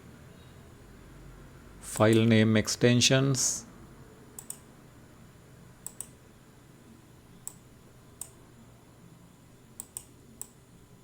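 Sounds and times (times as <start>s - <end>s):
faint room hiss: 0.0s - 11.0s
computer mouse clicks: 4.4s - 4.7s, 5.8s - 6.2s, 7.4s - 7.6s, 9.8s - 10.6s.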